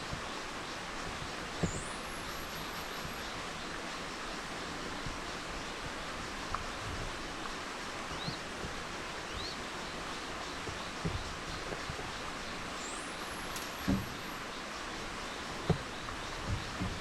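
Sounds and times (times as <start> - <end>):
forest ambience hiss: 0.0 - 17.0
soft low knocks: 10.4 - 14.4, 15.4 - 17.0.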